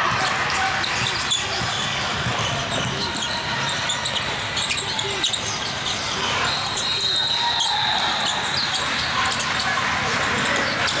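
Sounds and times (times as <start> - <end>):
basketball bouncing on court: 0.0 - 5.6.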